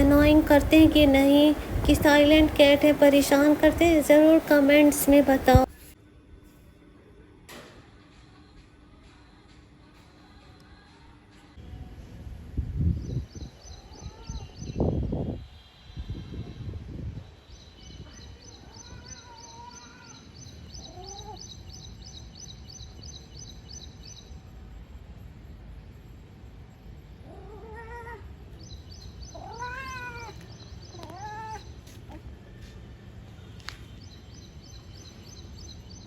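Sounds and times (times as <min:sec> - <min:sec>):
cat meowing: 0:13.9 - 0:14.5, 0:18.7 - 0:20.2, 0:20.8 - 0:21.4, 0:27.2 - 0:28.3, 0:29.2 - 0:32.2.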